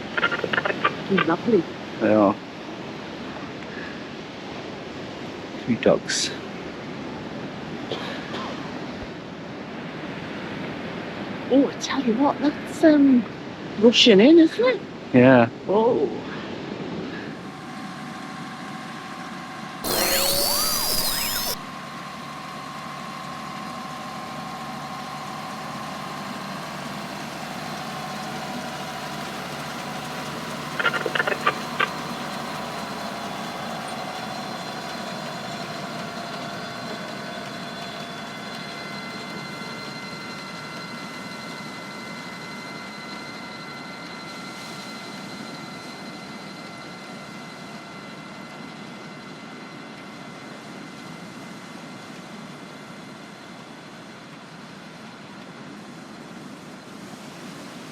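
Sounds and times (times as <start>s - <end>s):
loud sweeping burst: 19.8s - 21.7s
tractor engine running: 23.3s - 37.2s.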